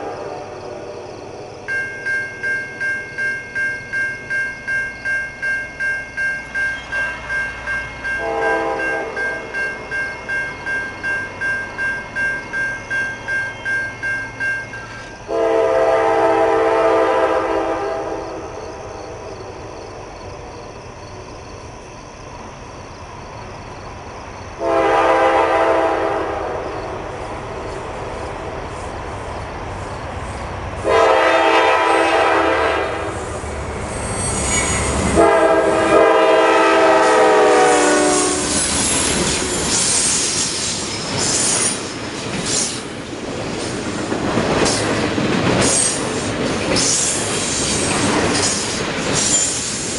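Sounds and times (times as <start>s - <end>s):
train wheels squealing: 1.7s - 15.3s, 33.2s - 35.2s, 37.0s - 49.9s
locomotive air horn: 8.2s - 9.5s, 15.3s - 18.4s, 24.6s - 26.6s, 30.8s - 33.3s, 34.2s - 38.7s
wheels clattering over rail joints: 38.6s - 49.7s.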